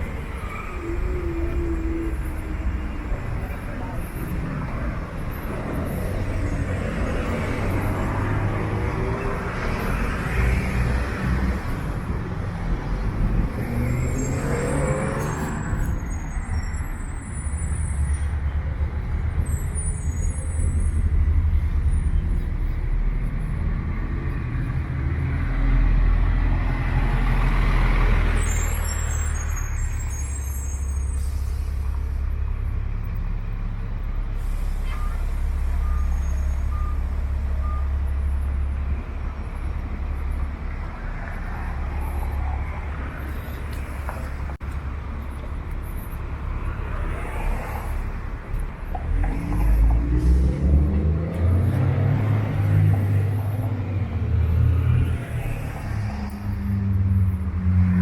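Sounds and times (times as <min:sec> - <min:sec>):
trucks and cars passing: 0:00.0 - 0:58.0
short beeps: 0:35.8 - 0:38.0.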